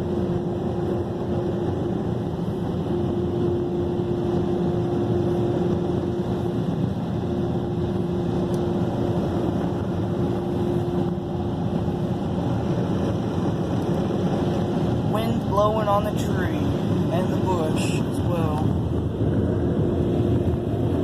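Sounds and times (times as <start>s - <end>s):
constant hum: 0.0s - 21.0s.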